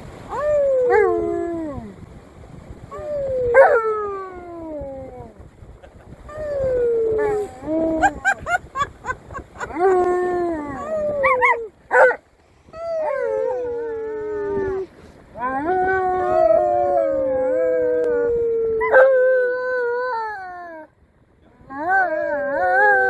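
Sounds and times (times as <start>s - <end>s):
dogs howling: 12.8s - 20.8s, 21.7s - 23.0s.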